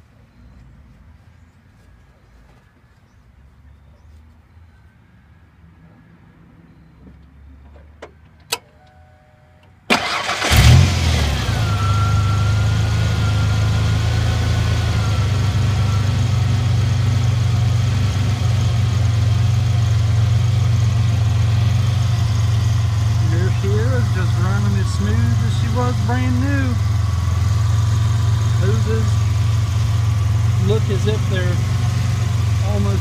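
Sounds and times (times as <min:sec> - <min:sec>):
car engine idling: 0:09.8 - 0:33.0
car engine cranking: 0:09.9 - 0:17.2, 0:21.5 - 0:33.0.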